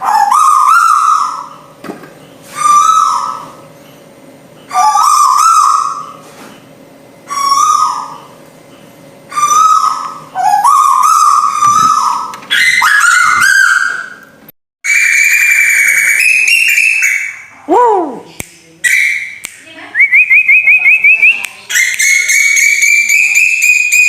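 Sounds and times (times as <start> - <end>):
owl call: 2.5 - 3.6, 4.7 - 6.2, 7.3 - 8.4, 9.3 - 14.2.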